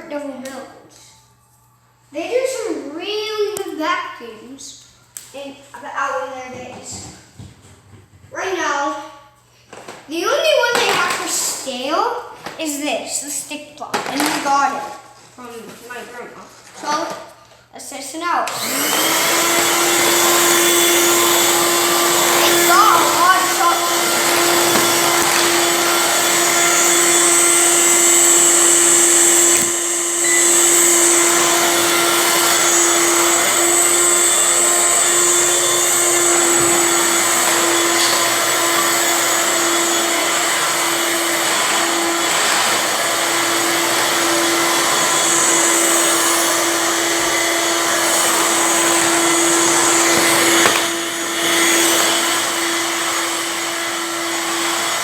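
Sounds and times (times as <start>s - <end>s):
stick vacuum running: 18.5s - 55.0s.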